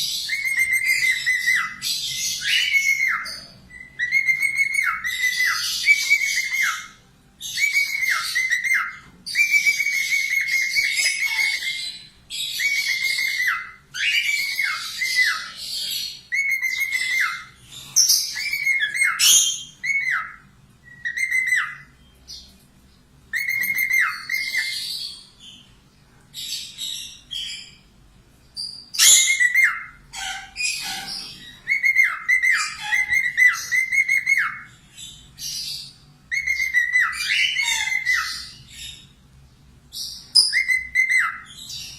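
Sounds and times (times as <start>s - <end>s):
parrot whistling: 0.2s - 22.0s, 23.3s - 25.0s, 29.0s - 34.7s, 36.3s - 38.6s, 40.3s - 41.8s
parrot scratchy chatter: 29.1s - 34.2s.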